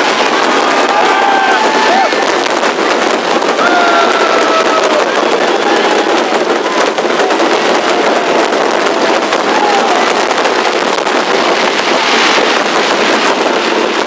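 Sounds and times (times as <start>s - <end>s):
fireworks crackling pops: 0.0s - 14.0s.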